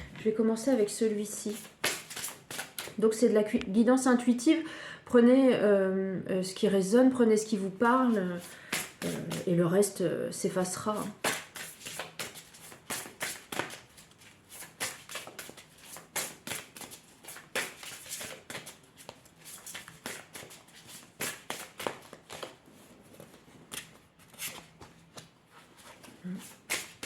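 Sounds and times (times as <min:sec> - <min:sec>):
cards being shuffled: 0:01.4 - 0:03.0, 0:11.0 - 0:27.0.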